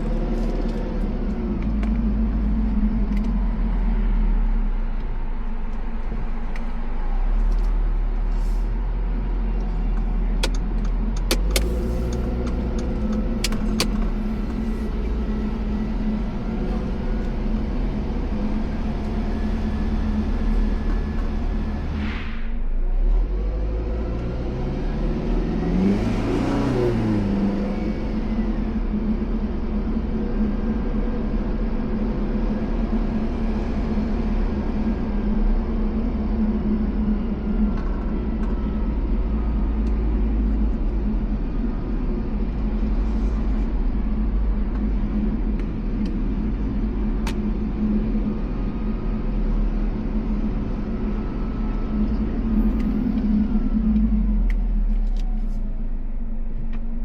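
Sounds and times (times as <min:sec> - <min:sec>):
car engine and road noise: 0:00.0 - 0:57.0
rush of passing noise: 0:22.0 - 0:22.8.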